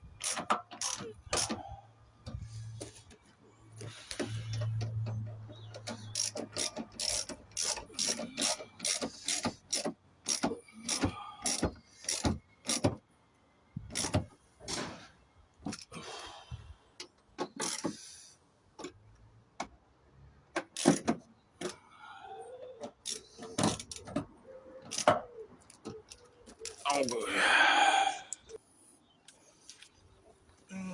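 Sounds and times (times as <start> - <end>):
metal clicks and knocks: 4.1 - 13.0, 22.8 - 27.1
ratchet wrench clicking: 6.1 - 12.8.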